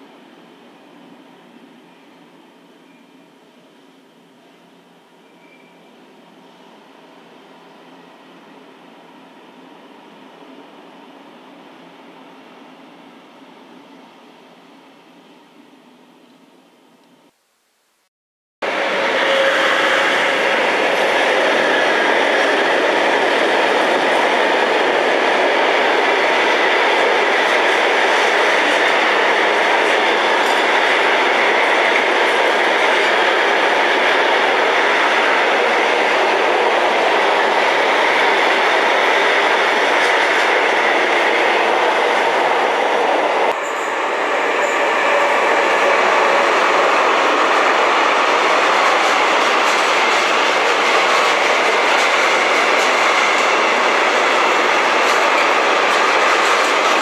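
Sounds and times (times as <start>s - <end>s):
freight train rolling past: 18.6s - 57.0s.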